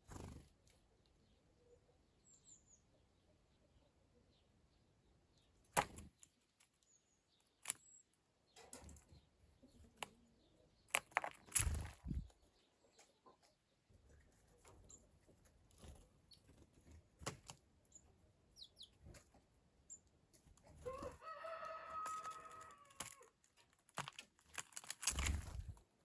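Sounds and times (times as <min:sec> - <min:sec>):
rooster crowing: 0:20.8 - 0:23.3.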